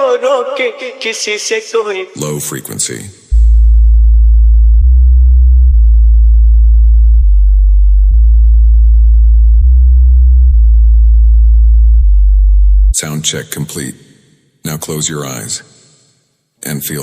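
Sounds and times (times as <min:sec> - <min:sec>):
deep bass tones: 0:03.3 - 0:13.2.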